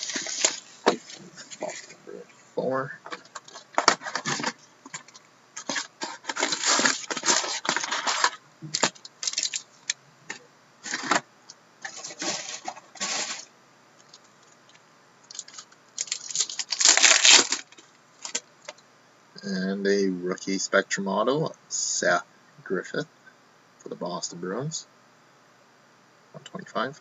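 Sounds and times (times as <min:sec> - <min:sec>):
wrappers tearing and crinkling: 0:00.0 - 0:02.0, 0:03.1 - 0:10.0, 0:10.8 - 0:11.2, 0:11.8 - 0:13.5, 0:15.3 - 0:18.8.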